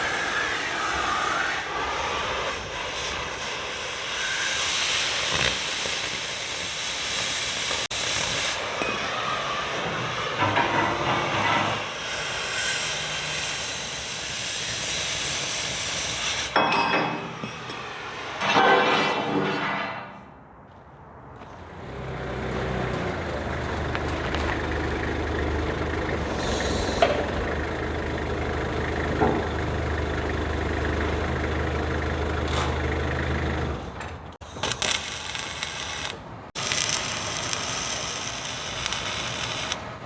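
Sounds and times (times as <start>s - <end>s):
carbon-arc gouging hiss: 0.0s - 10.4s, 11.7s - 16.6s, 26.2s - 27.2s, 34.4s - 39.8s.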